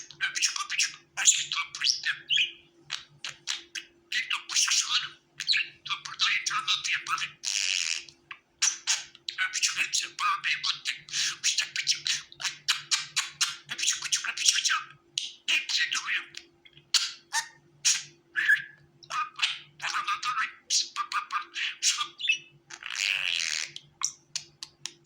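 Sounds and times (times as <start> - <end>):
faint steady hum: 0.0 - 25.0
budgerigars chirping and squawking: 0.1 - 25.0.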